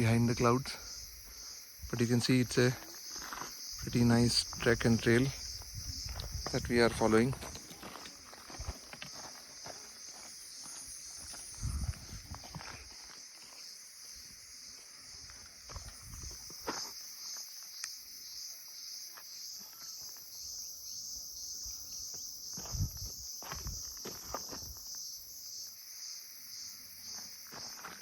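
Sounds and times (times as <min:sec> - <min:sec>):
footsteps crunching on dirt: 0:02.6 - 0:17.7, 0:22.0 - 0:25.1, 0:27.0 - 0:28.0.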